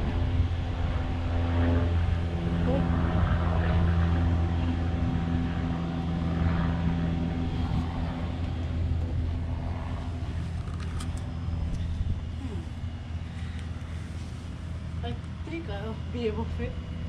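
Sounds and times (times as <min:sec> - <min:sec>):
motor humming steadily: 0:00.0 - 0:17.0.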